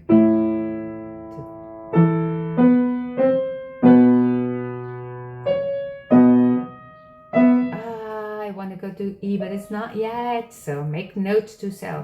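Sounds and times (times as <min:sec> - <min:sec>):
slow piano chords: 0:00.0 - 0:08.3.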